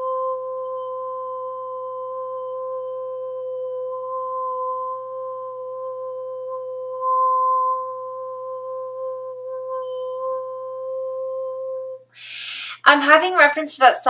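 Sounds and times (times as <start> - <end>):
woman humming a steady note: 0.0 - 12.9.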